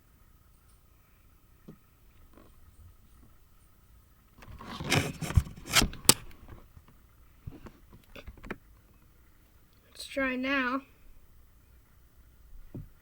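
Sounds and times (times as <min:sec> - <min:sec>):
handling scraping and rubbing: 0:04.4 - 0:06.3.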